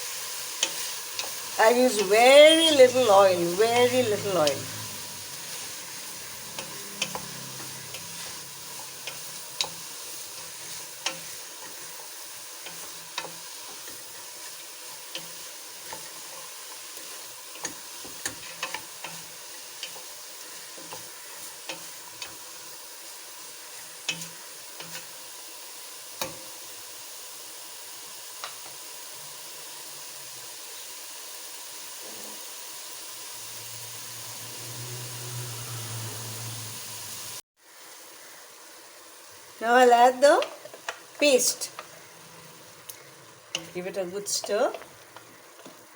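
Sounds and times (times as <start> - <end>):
vegetables sizzling in a pan: 0.0 - 45.9
spoon scraping a pan: 3.8 - 22.4.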